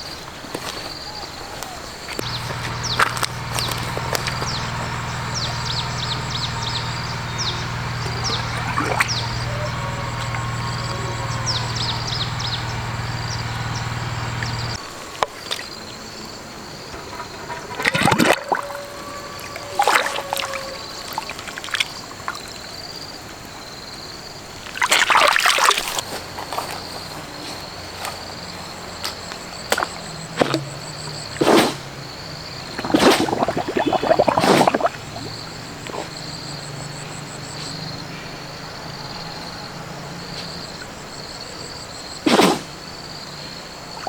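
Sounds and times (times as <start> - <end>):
water splashing and sloshing: 0.0 - 23.8, 24.4 - 36.9.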